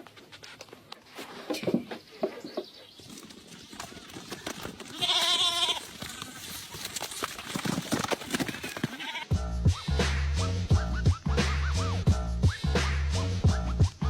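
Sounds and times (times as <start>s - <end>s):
small knocks and rustles: 0.0s - 9.1s
loud wavering bleat: 4.9s - 5.9s, 8.9s - 9.3s.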